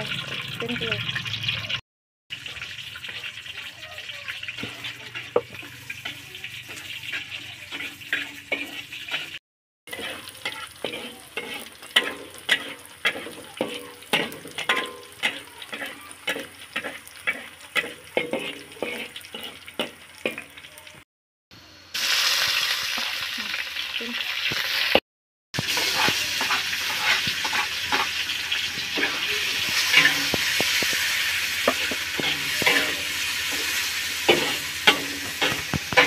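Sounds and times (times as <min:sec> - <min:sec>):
greens sizzling in oil: 0:00.0 - 0:21.0, 0:21.6 - 0:25.0, 0:25.6 - 0:36.0
spices frying in hot oil: 0:00.0 - 0:21.0, 0:21.6 - 0:25.0, 0:25.6 - 0:36.0
metal spatula scraping wok: 0:02.4 - 0:20.6, 0:25.6 - 0:36.0.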